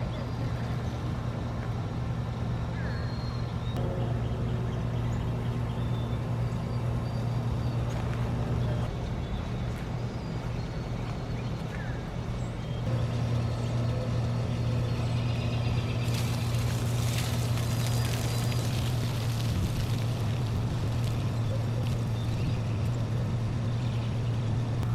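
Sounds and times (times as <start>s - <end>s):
lawn mower engine running: 12.1s - 24.9s.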